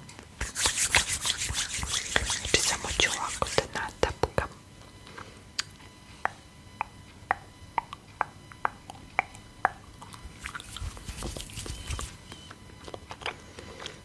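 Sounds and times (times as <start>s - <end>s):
crackly rustling handling noise: 10.2s - 14.0s.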